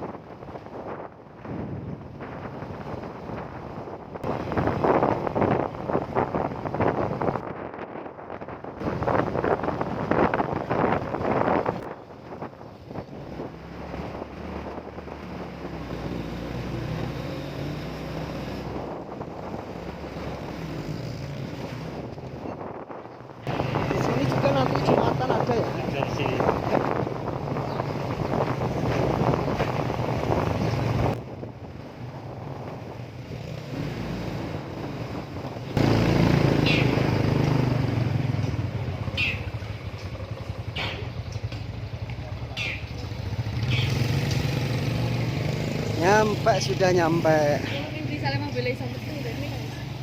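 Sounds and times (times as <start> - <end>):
wind buffeting microphone: 0.0 - 50.0
motorcycle engine running: 18.6 - 31.2, 32.3 - 50.0
small motorcycle engine running: 35.8 - 46.3.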